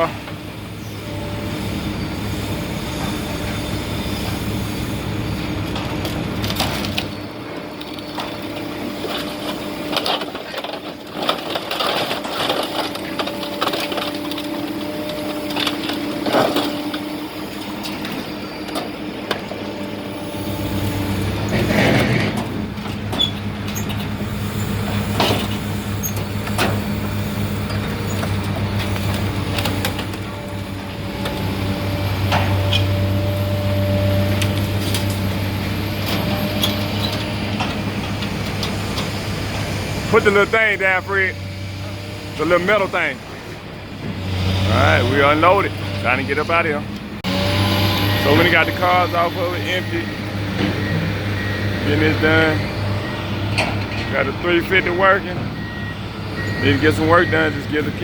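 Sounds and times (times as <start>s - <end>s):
clanks and knocks: 7.8s - 20.0s, 21.0s - 24.2s, 24.9s - 33.2s, 53.5s - 54.1s.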